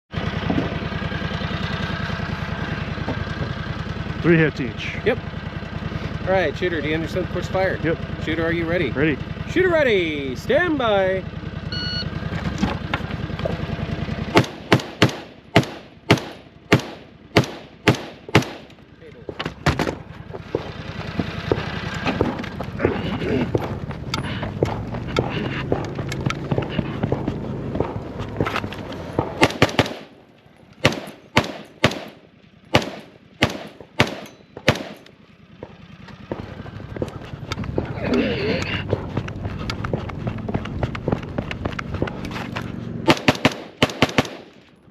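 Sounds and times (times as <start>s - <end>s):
low steady rumble: 0.1s - 44.9s
rifle shots: 14.3s - 18.8s, 29.1s - 30.2s, 30.8s - 35.1s, 43.0s - 44.6s.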